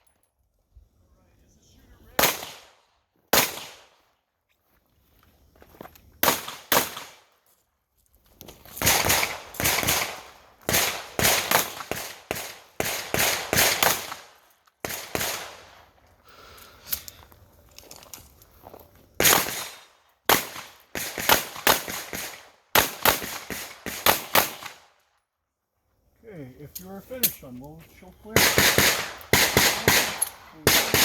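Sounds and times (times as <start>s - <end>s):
handgun shots echoing: 6.2s - 7.2s, 28.3s - 31.0s
quiet scattered sounds: 23.2s - 31.0s.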